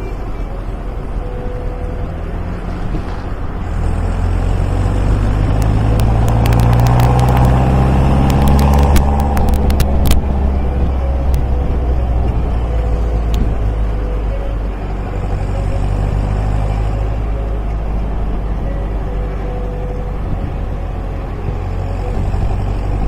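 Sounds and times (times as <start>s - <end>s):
car engine running: 0.0s - 23.0s
sharp clicks: 5.2s - 10.3s.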